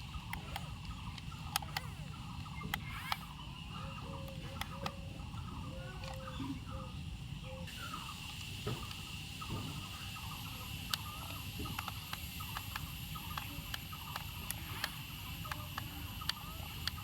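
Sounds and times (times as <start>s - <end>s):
sharp clicks: 0.0s - 3.5s, 10.2s - 17.0s
high insect-like drone: 7.7s - 17.0s.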